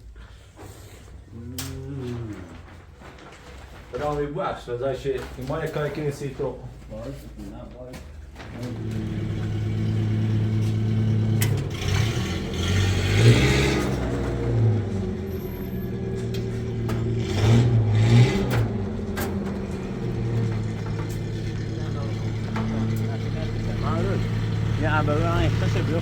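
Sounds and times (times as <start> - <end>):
engine humming: 8.6 - 26.0.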